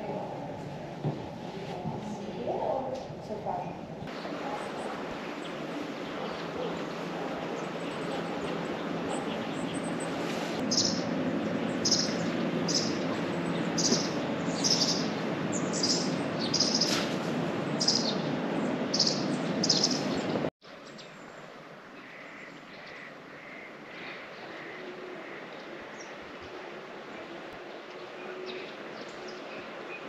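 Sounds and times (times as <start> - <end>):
bird chirping: 7.6 - 17.0, 17.7 - 21.2.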